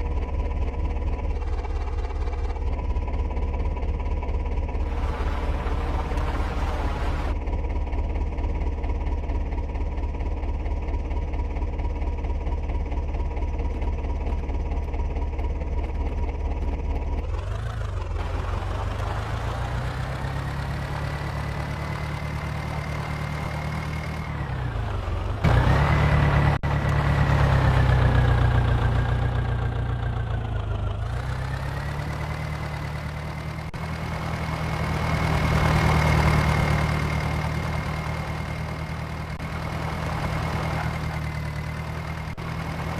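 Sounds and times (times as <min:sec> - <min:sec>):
tractor diesel engine revving: 0:04.8 - 0:07.4, 0:17.2 - 0:42.9.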